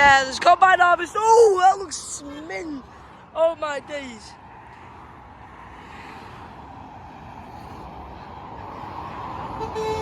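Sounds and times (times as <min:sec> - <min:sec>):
motorway traffic rushing: 0:00.0 - 0:10.0
vehicle horn blowing: 0:09.5 - 0:10.0.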